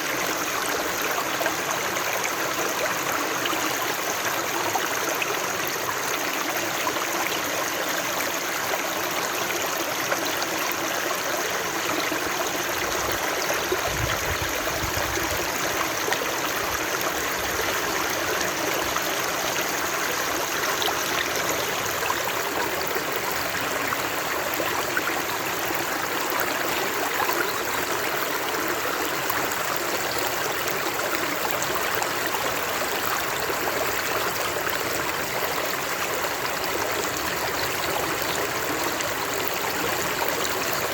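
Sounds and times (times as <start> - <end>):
water running over rocks: 9.9 - 40.9.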